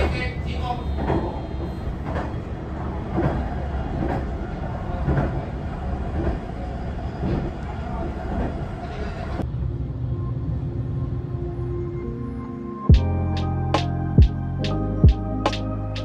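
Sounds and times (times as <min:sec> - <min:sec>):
wheels clacking over rail joints: 0:00.0 - 0:04.4
train rumbling on track: 0:00.0 - 0:11.6
calm music with held tones: 0:11.6 - 0:16.0.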